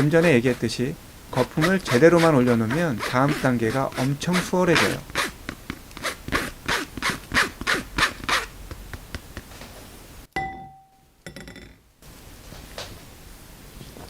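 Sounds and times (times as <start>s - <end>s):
flour sifted through sieve: 0.0s - 5.1s
sharp metallic clink: 10.4s - 11.6s.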